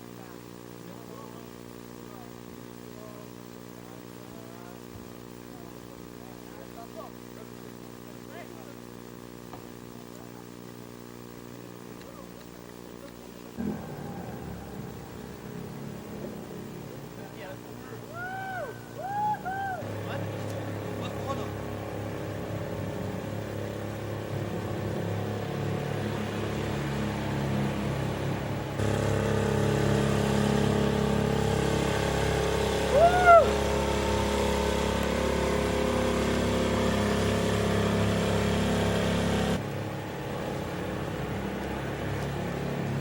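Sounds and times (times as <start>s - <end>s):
motorboat engine running: 0.0s - 43.0s
short pitched rising and falling sound: 13.6s - 20.1s.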